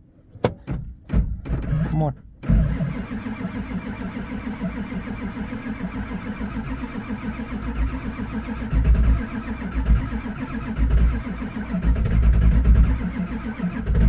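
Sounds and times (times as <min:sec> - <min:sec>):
diesel engine cranking on starter: 0:00.5 - 0:14.0
engine firing with low thuds: 0:05.8 - 0:14.0.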